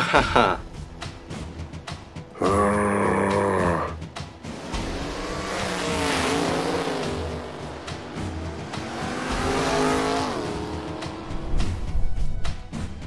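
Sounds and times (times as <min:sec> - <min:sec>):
cartoon car engine revving: 0:02.4 - 0:11.8.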